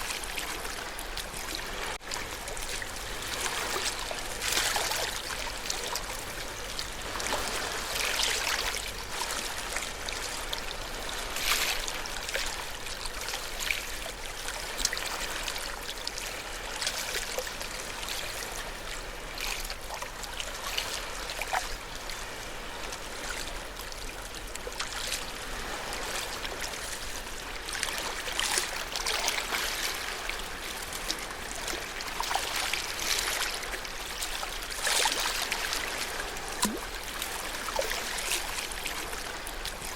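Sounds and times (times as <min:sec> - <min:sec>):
ocean waves: 0:00.0 - 0:39.9.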